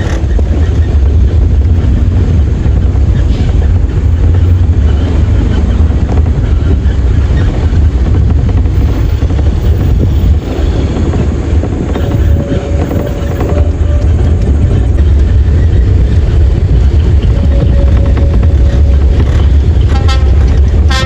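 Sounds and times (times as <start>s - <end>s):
diesel truck engine droning: 0.0s - 21.0s.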